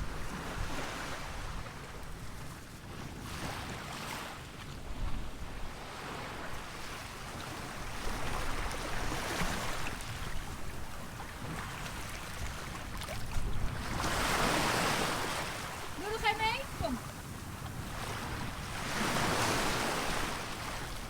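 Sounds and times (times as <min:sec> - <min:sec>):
surf washing onto beach: 0:07.6 - 0:21.0.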